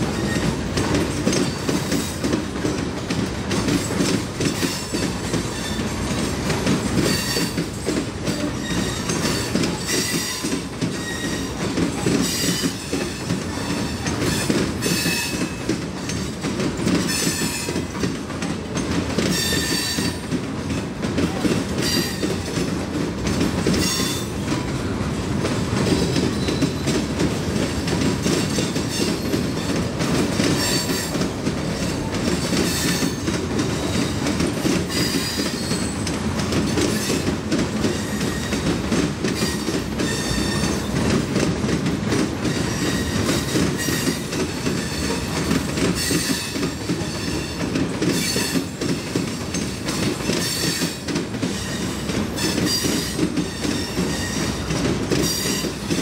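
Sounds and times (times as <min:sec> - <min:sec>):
steel wheels clattering on rails: 0:00.0 - 0:56.0
high wheel squeals: 0:08.3 - 0:11.6, 0:51.6 - 0:54.7.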